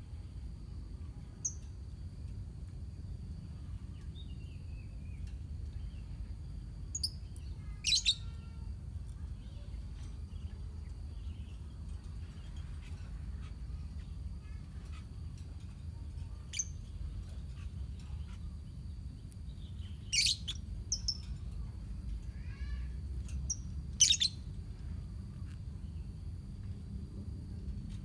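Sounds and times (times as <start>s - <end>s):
low background hum: 0.0s - 28.0s
lovebirds chirping: 7.0s - 8.3s, 16.3s - 21.4s, 23.5s - 24.4s.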